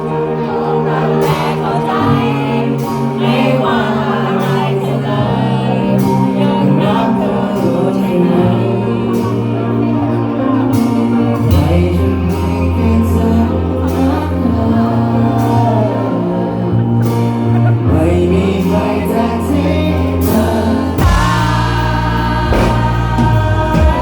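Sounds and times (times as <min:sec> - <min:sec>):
live rock band playing: 0:00.0 - 0:24.0
person singing: 0:00.0 - 0:24.0
drum hits: 0:22.5 - 0:24.0.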